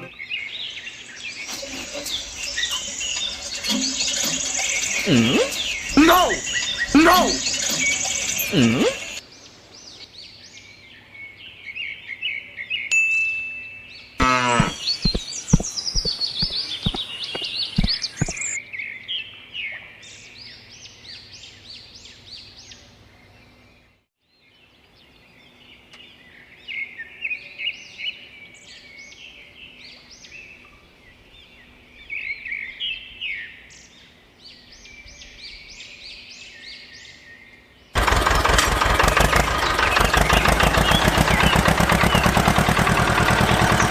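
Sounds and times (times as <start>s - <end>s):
small birds chirping: 0.0s - 12.8s, 14.0s - 23.7s, 39.0s - 43.9s
loud rapid mechanical rattle: 1.5s - 9.2s, 38.0s - 43.9s
clattering whirring burst: 38.0s - 43.9s.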